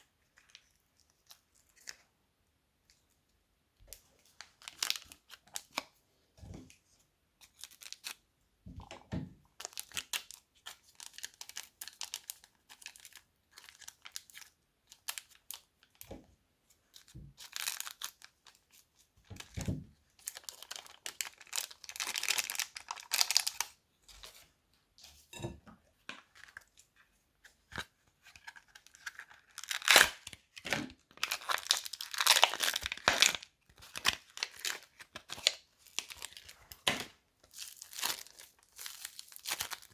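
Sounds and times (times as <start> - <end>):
slime crinkling and crunching: 20.2 - 23.8, 27.8 - 39.9.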